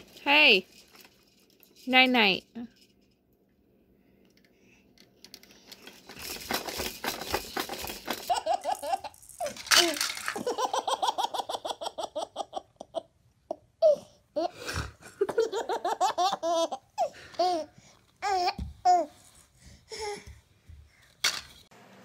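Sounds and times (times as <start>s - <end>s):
baby giggling: 8.3s - 9.2s, 9.8s - 14.6s, 15.2s - 18.6s.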